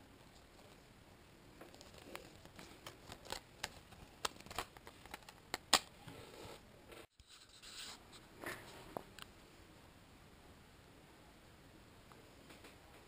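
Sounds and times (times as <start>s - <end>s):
packaging clicks and rustles: 1.7s - 5.9s.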